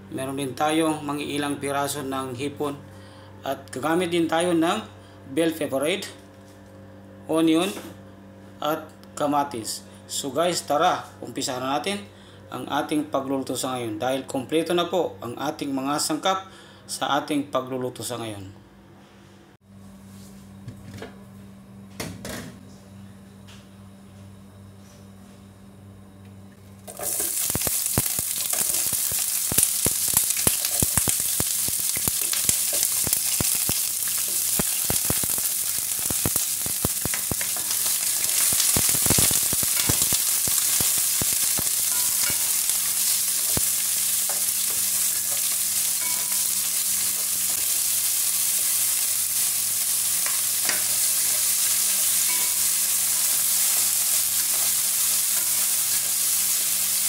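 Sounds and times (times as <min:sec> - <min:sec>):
onions sizzling in hot oil: 0:26.9 - 0:57.0.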